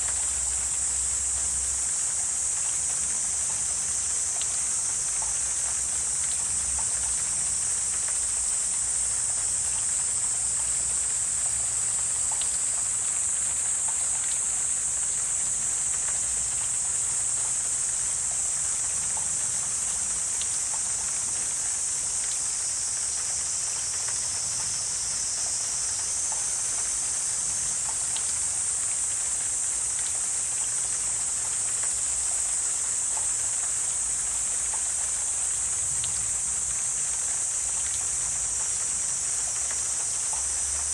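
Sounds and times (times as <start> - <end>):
high-pitched insect chorus: 0.0 - 40.9
faint ticks and clicks: 2.6 - 8.8, 12.3 - 12.9, 35.9 - 40.9.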